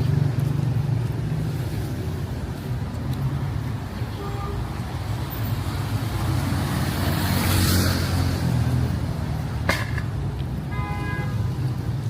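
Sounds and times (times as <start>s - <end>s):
vehicle passing close: 5.4s - 9.5s.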